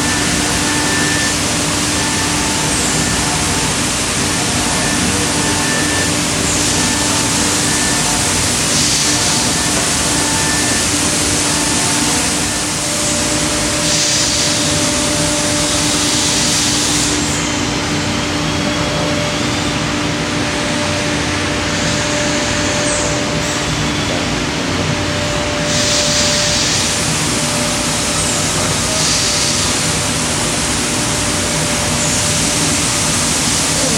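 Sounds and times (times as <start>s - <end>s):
router cutting wood: 0.0s - 18.0s
machine hum: 0.0s - 33.9s.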